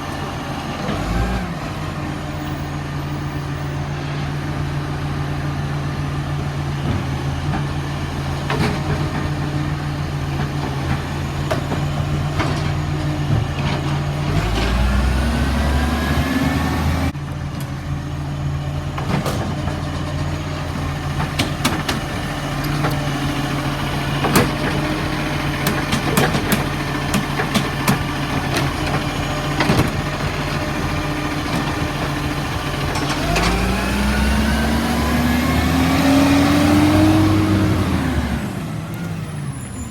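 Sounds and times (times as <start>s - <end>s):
diesel truck engine idling and revving: 0.0s - 39.9s
sharp knocks and clatter: 21.2s - 23.0s, 25.6s - 30.6s.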